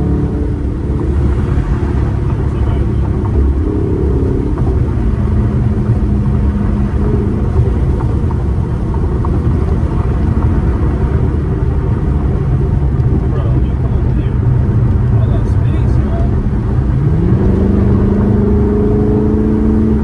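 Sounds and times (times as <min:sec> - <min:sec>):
car engine droning: 0:00.0 - 0:20.0
road and wind noise: 0:00.0 - 0:20.0.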